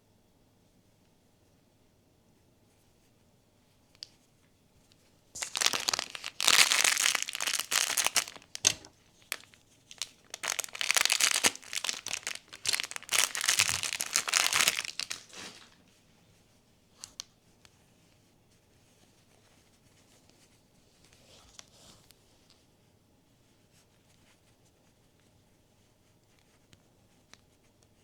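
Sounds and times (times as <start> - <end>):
packaging crinkling and tearing: 5.4 - 15.8.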